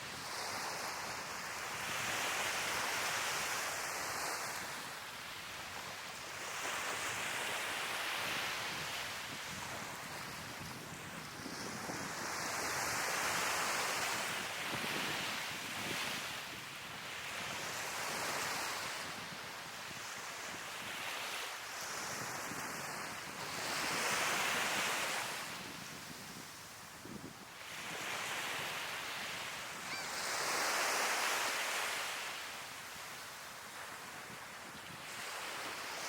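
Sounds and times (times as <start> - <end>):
sea waves breaking on shore: 0.0 - 36.0.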